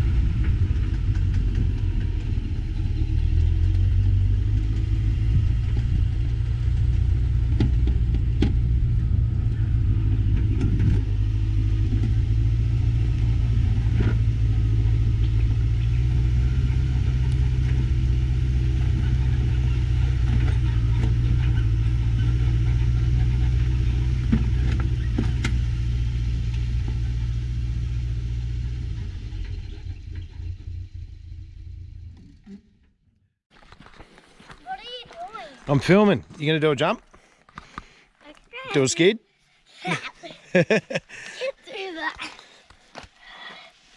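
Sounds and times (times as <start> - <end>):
vehicle engine droning: 0.0 - 33.4.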